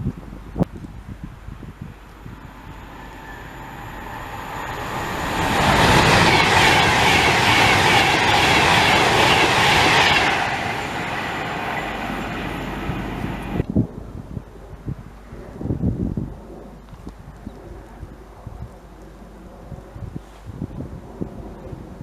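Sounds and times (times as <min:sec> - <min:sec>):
train passing at speed: 0:01.3 - 0:13.6.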